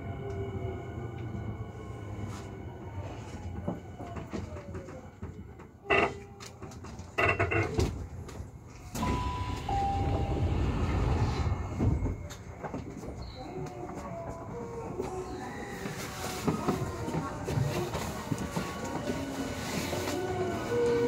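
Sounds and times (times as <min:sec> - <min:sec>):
sliding doors thudding: 0:08.9 - 0:12.5
train motor whine: 0:08.9 - 0:13.6
steady rushing noise: 0:09.1 - 0:12.2.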